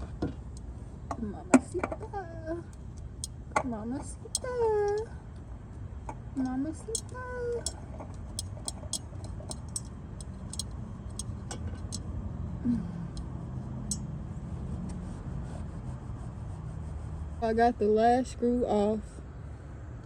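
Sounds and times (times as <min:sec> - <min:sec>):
low steady rumble: 0:00.0 - 0:20.0
metallic clicks of hand tools: 0:06.4 - 0:12.1.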